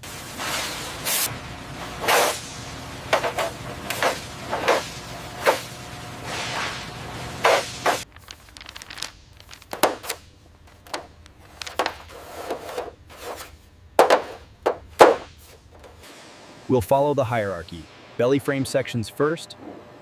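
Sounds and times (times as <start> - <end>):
steady background hum: 0.0 - 20.0
knocks and clanks of workshop handling: 9.6 - 16.0.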